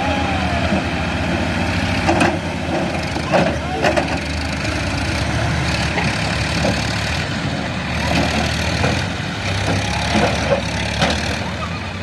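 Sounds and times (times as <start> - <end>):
tractor diesel engine droning: 0.0 - 12.0.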